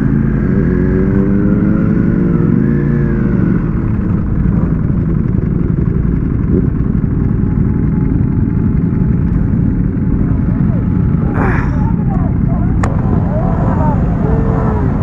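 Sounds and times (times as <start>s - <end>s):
motorcycle engine running: 0.0s - 15.0s
wind rushing on microphone: 3.3s - 15.0s.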